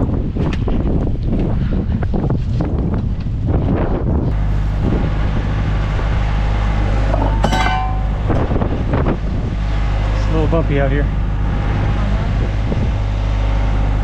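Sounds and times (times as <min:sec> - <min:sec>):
wind rushing over microphone: 0:00.0 - 0:06.3, 0:11.1 - 0:14.0
low steady drone: 0:04.3 - 0:14.0
sharp metallic clink: 0:07.1 - 0:08.6.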